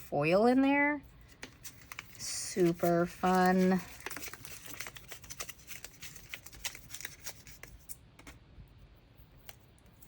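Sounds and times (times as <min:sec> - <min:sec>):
packaging rustling and clicking: 0:01.3 - 0:08.3.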